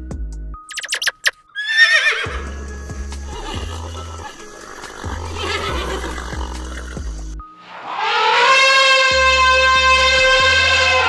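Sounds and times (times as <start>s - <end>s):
background music with steady beat: 0.0s - 1.3s, 2.2s - 7.7s
horse whinnying: 0.7s - 2.6s, 3.2s - 7.1s.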